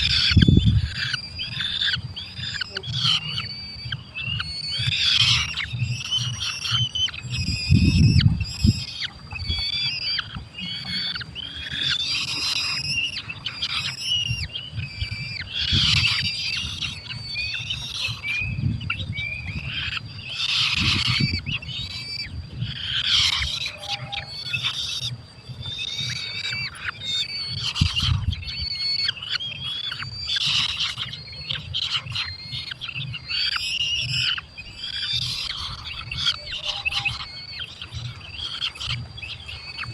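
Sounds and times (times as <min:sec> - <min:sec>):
low rumbles: 0:00.0 - 0:29.2
falcons calling shrilly: 0:00.0 - 0:39.9.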